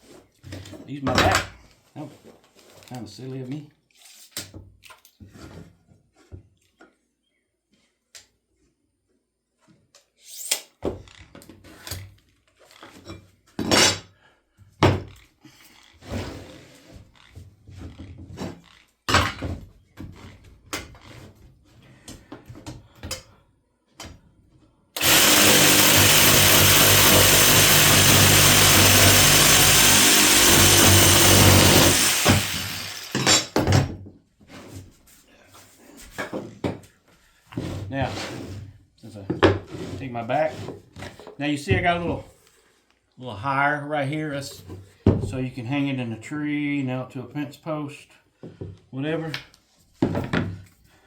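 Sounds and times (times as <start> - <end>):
wood and tools clattering: 25.0 - 34.9.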